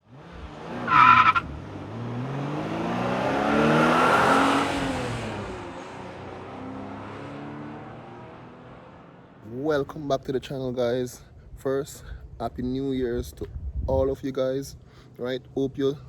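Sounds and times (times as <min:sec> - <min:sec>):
car engine revving: 0:00.0 - 0:09.5.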